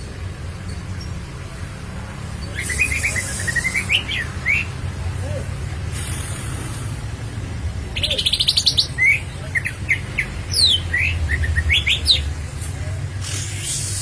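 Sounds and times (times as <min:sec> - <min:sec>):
bird singing trills and whistles: 0:02.4 - 0:04.8, 0:07.9 - 0:12.3.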